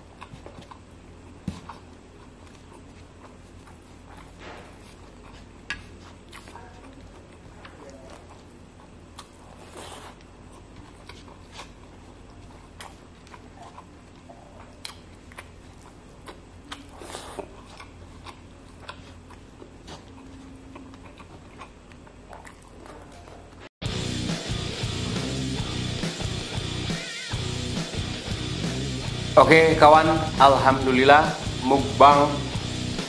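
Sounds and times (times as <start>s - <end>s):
person chewing and lip smacking: 0.0s - 23.6s.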